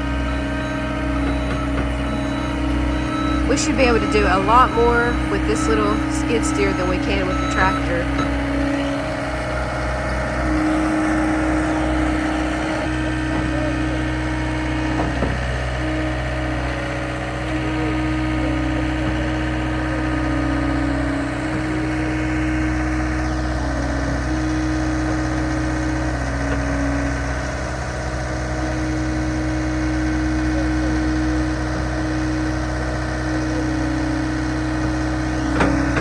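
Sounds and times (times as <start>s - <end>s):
diesel engine idling: 0.0s - 36.0s.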